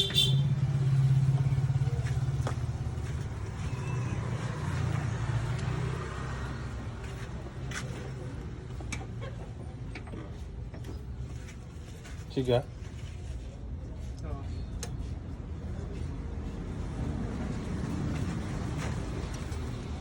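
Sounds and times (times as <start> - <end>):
vehicle engine idling: 0.0 - 12.2.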